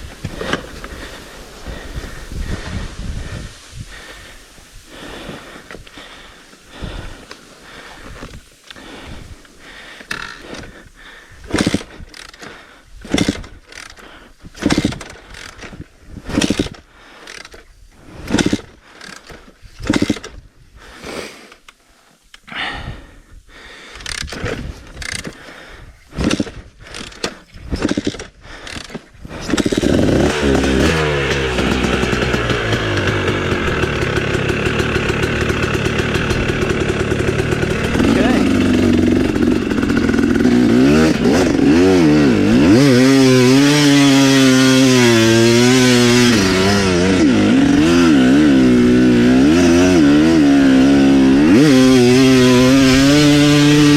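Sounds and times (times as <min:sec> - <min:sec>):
dirt bike engine revving: 0:10.1 - 0:17.5, 0:18.1 - 0:20.3, 0:26.2 - 0:53.9.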